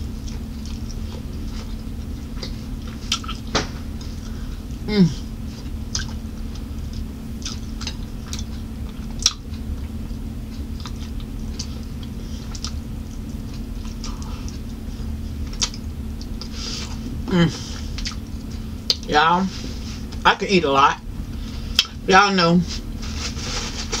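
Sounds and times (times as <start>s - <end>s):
steady low hum: 0.0s - 24.0s
chewing and wet mouth smacks: 2.4s - 3.4s, 5.6s - 9.9s, 10.5s - 14.8s, 15.4s - 16.5s, 17.9s - 19.1s.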